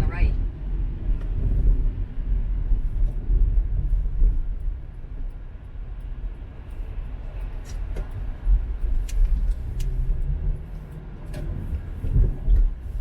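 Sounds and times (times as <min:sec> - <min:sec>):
car cabin rumble: 0:00.0 - 0:13.0
faint ticks: 0:03.0 - 0:12.8.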